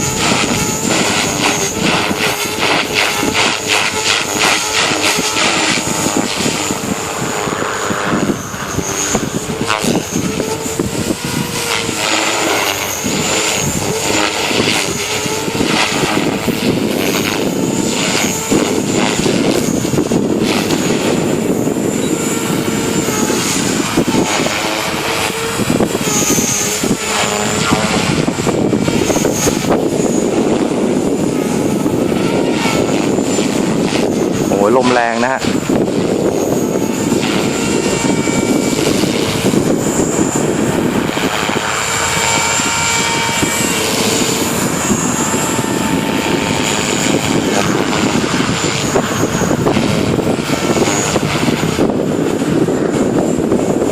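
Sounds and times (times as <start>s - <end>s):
rc helicopter rotor and motor whine: 0.0s - 53.9s
wind gusting across microphone: 0.0s - 53.9s.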